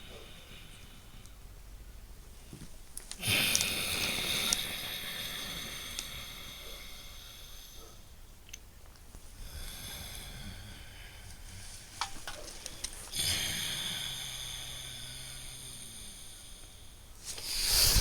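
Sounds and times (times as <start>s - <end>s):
loud breathing through nose: 3.2s - 8.2s, 9.4s - 12.0s, 12.8s - 18.0s.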